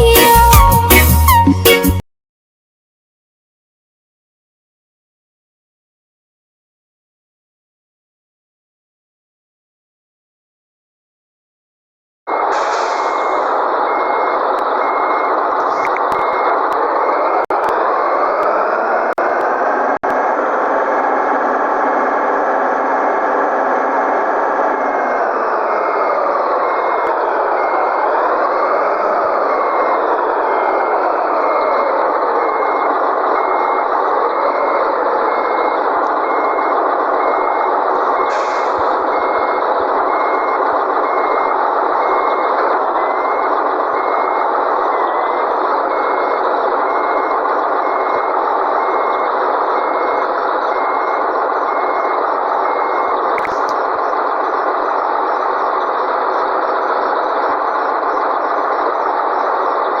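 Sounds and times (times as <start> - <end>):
reversing alarm beeping: 12.3 - 60.0
truck engine running: 12.3 - 60.0
click: 53.4 - 53.8.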